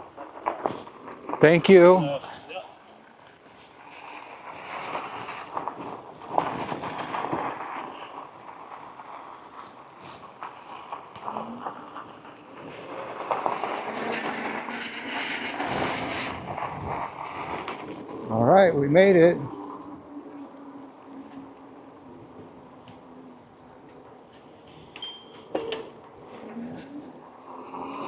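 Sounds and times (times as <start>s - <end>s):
bicycle rolling on pavement: 0.0s - 28.0s
bicycle clicks and rattles: 3.9s - 11.5s, 19.5s - 26.2s.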